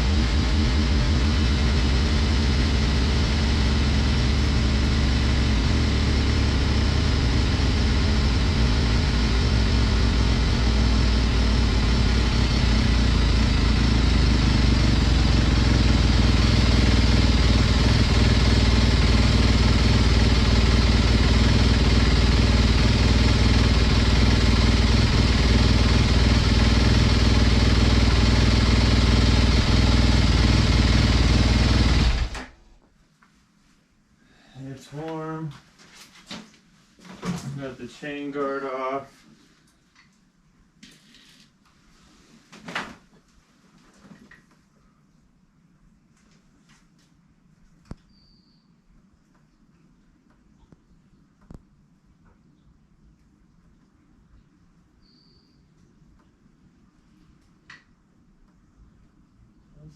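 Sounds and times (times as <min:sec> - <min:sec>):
motorcycle engine idling: 0:00.0 - 0:32.4.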